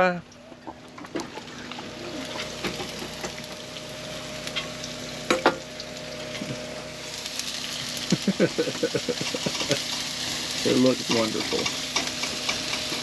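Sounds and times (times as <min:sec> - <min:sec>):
stir fry sizzling in a pan: 0:01.1 - 0:13.0
utensil clanking against pan: 0:11.2 - 0:13.0.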